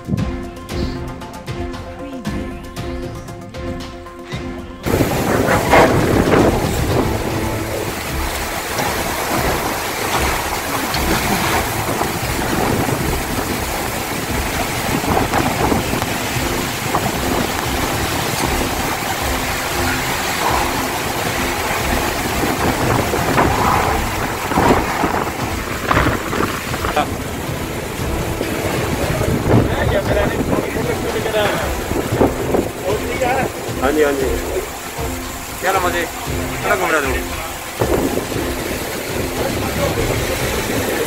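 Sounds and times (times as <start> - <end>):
heavy rain pouring: 0.0 - 41.0
gusts or splashes: 2.8 - 41.0
low rumble: 4.8 - 35.5.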